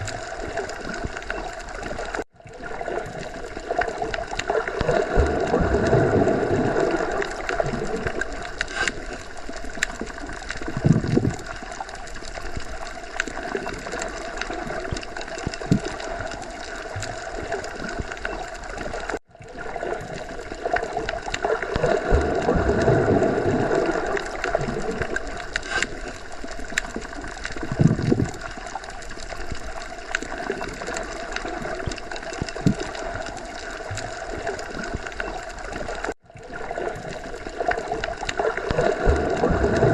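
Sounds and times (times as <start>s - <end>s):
underwater watery rush: 0.0s - 39.9s.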